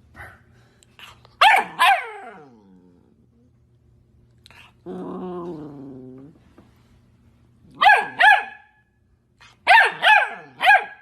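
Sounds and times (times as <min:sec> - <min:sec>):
puppy barking: 0:01.4 - 0:02.4, 0:07.7 - 0:08.8, 0:09.6 - 0:11.0.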